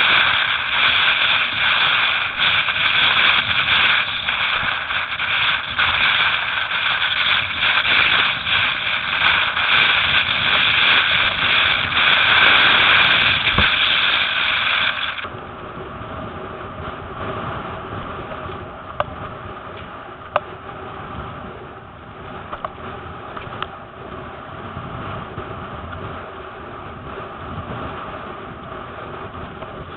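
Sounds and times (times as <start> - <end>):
rushing water: 0.0 - 15.3
gusty wind: 0.0 - 29.9.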